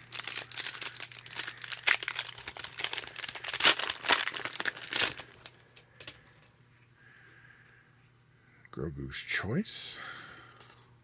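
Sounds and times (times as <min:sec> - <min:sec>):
wrapper crinkling: 0:00.0 - 0:06.2.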